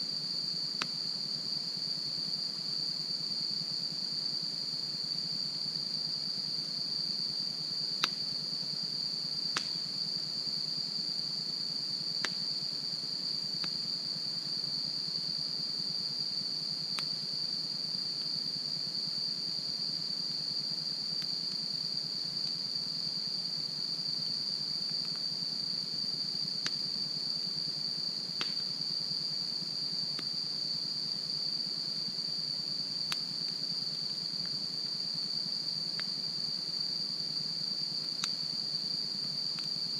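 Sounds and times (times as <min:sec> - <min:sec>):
high-pitched insect chorus: 0:00.0 - 0:39.9
campfire crackling and popping: 0:28.4 - 0:28.7.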